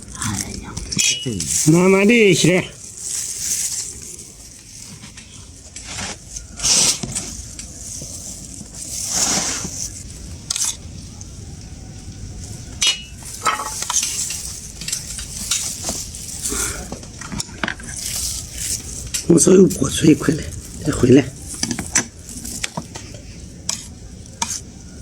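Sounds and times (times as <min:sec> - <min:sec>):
utensil scraping a pan: 0:12.8 - 0:24.7.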